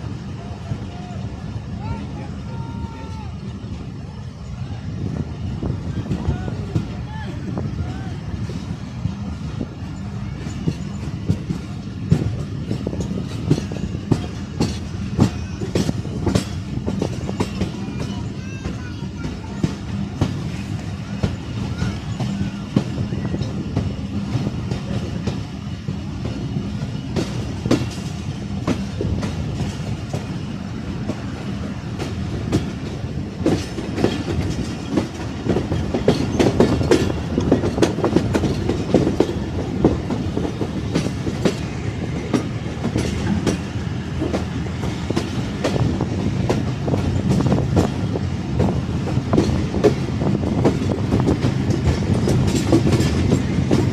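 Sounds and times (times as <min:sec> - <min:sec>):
train rumble: 0:00.0 - 0:53.9
wheels clattering over rail joints: 0:06.0 - 0:53.9.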